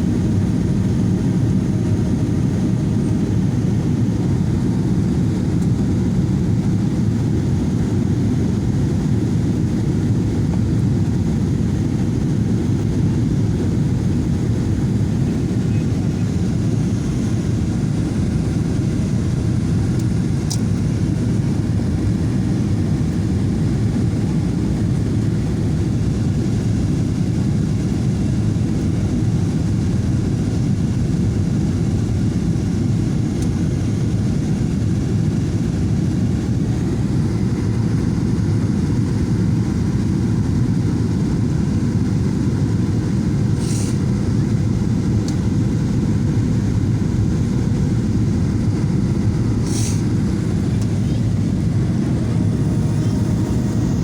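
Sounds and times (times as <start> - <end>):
jet engines and rushing air: 0.0 - 54.0
brief hiss: 43.6 - 44.0, 49.6 - 50.0.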